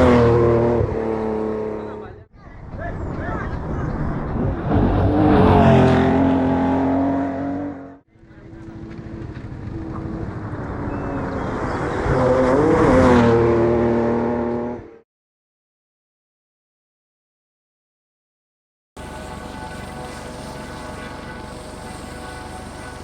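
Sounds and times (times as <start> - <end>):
rally cars passing at full throttle: 0.0 - 2.2, 3.1 - 15.0.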